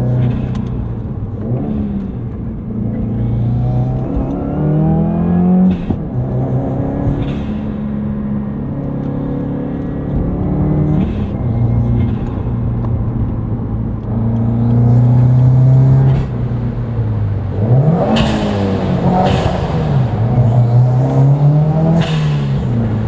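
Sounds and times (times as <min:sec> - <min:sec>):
car engine driving and revving: 0:00.0 - 0:23.0.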